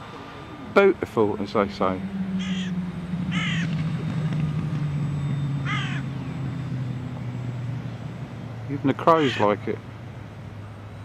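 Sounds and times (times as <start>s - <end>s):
model motor humming: 0.0s - 10.9s
crow cawing: 2.4s - 3.7s, 5.6s - 6.1s, 9.1s - 9.5s.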